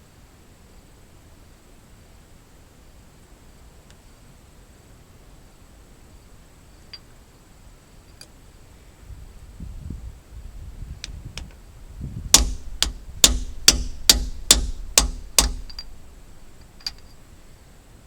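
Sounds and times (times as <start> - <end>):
light hammer taps: 12.4 - 17.2
hammer striking metal: 12.4 - 17.4.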